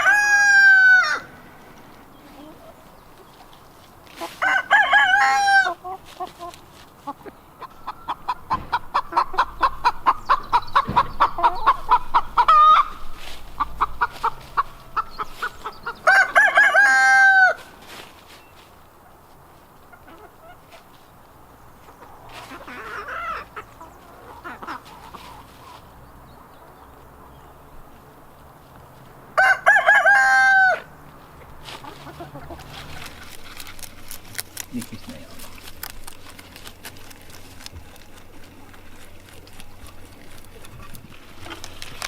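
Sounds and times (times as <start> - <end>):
rooster crowing: 0.0 - 1.4, 4.4 - 5.8, 15.8 - 17.7, 29.4 - 30.9
hen cackling: 0.0 - 2.9, 4.2 - 17.7, 21.9 - 25.8, 29.4 - 33.8.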